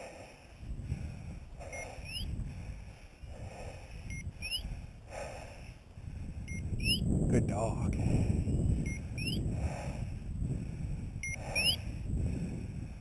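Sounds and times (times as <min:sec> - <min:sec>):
wind rumble on microphone: 0:00.0 - 0:13.0
beeper collar beep and chirp: 0:01.7 - 0:02.3, 0:04.1 - 0:04.7, 0:06.5 - 0:07.1, 0:08.8 - 0:09.4, 0:11.2 - 0:11.8.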